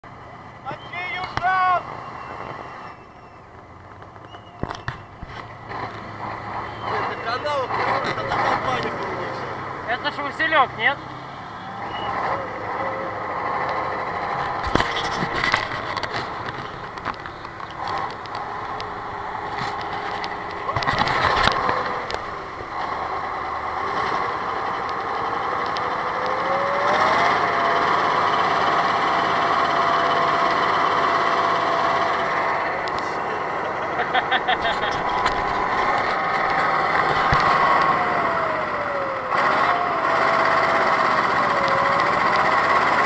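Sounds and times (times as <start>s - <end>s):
vehicle engine running: 0.0s - 43.0s
knocks and rattles: 13.7s - 23.0s.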